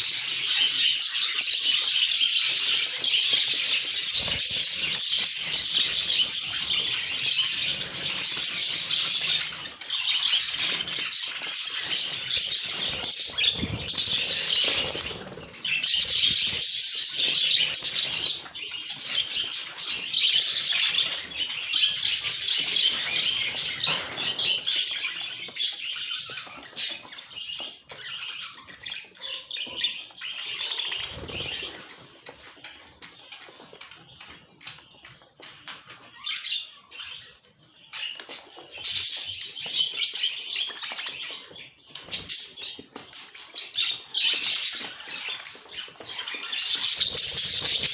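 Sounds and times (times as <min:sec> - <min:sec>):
budgerigars chirping: 0:00.0 - 0:31.9, 0:35.9 - 0:47.9
wings flapping: 0:03.9 - 0:09.5, 0:10.5 - 0:18.4, 0:30.8 - 0:32.0.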